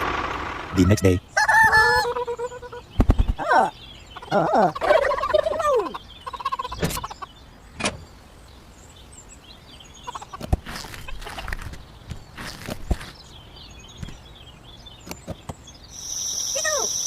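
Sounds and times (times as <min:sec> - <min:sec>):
turkey gobbling: 0:00.8 - 0:02.8, 0:04.2 - 0:07.2.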